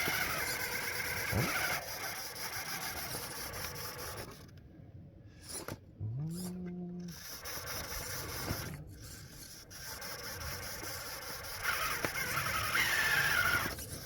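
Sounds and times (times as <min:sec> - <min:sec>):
toy car drivetrain whining: 0:00.0 - 0:04.6, 0:05.4 - 0:14.0
tyres scraping through snow: 0:07.2 - 0:14.0.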